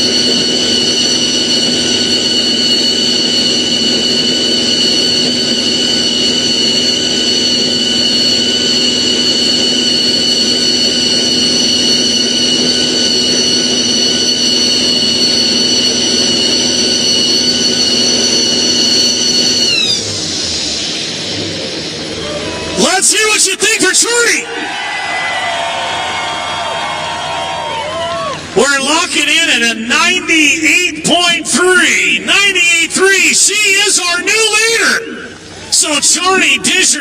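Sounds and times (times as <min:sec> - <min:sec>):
diesel truck engine revving: 0:00.0 - 0:24.5.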